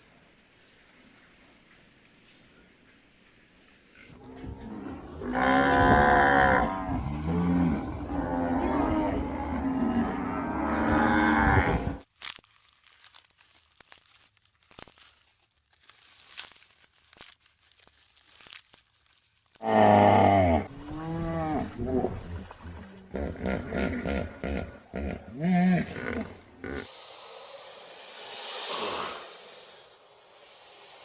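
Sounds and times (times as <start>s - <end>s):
cow mooing: 4.2s - 12.0s
faint clicks and crunches: 10.6s - 20.2s.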